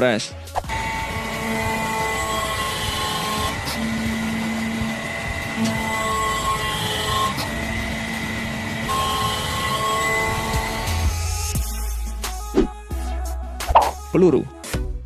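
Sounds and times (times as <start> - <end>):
hydraulic press humming: 0.7 - 11.3.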